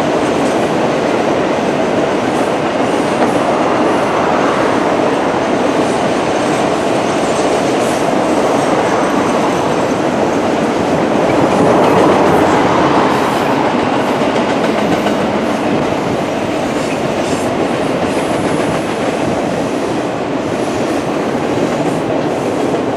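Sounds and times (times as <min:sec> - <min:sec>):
freight train wheels rumbling on rails: 0:00.0 - 0:22.9.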